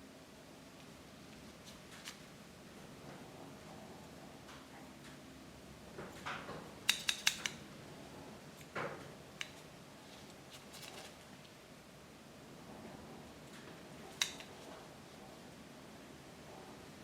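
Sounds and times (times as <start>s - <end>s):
metal tools clicking: 6.9s - 7.6s.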